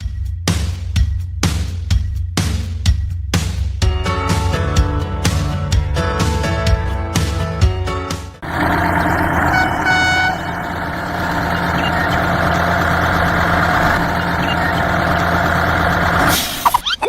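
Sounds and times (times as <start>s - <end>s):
background music: 0.0s - 8.4s
vehicle engine running: 8.4s - 16.6s
short horn toots: 9.4s - 10.6s.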